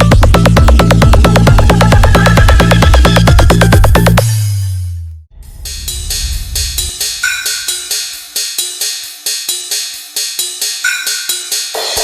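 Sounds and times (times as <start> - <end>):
held high synth note: 5.4 - 8.2
drum hits: 5.4 - 8.3
hi-hats and cymbals: 5.5 - 12.0.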